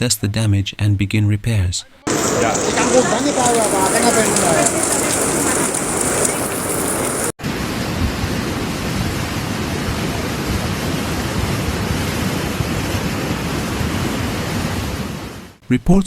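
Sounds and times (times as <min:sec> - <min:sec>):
floodwater rushing: 0:02.1 - 0:07.8.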